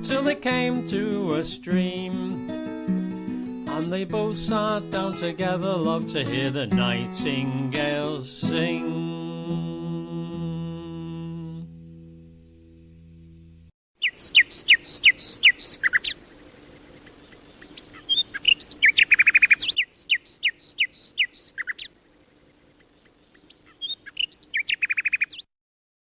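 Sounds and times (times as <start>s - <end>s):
nightingale singing: 14.0s - 25.5s.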